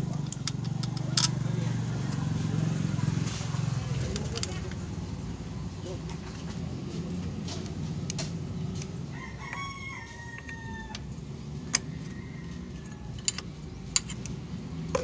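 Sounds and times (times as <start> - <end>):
rooster crowing: 9.1 - 11.1, 11.7 - 13.3.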